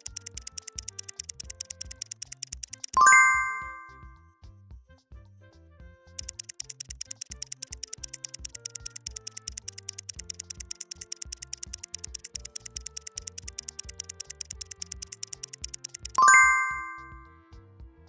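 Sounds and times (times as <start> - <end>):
fast clock-like ticking: 0.0 - 3.2, 6.2 - 17.1
loud bell-like ding: 3.0 - 4.0, 16.2 - 17.2.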